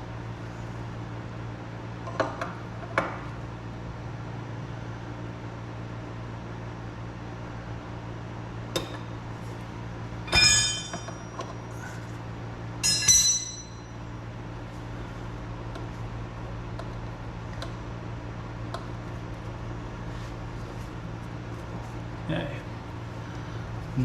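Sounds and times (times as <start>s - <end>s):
steady low hum: 0.0s - 24.0s
metal wrenches clinking: 10.3s - 11.4s, 12.8s - 13.8s.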